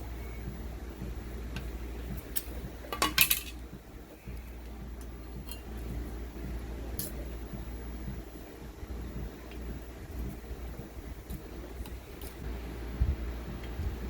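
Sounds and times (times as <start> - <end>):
steady low hum: 0.0 - 14.0
metal objects clinking: 2.9 - 3.6.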